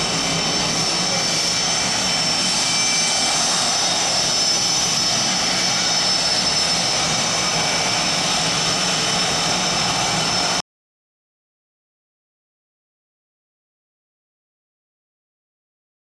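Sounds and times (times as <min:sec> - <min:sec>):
jet engines whining and roaring: 0:00.0 - 0:10.6.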